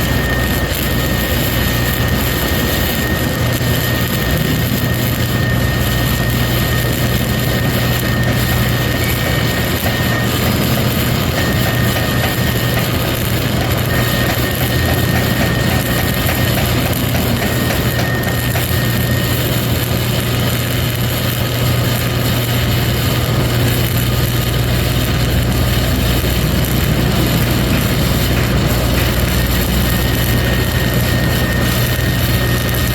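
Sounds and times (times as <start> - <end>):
welding arc hissing and crackling: 0.0 - 32.9
welding machine hum: 0.0 - 32.9.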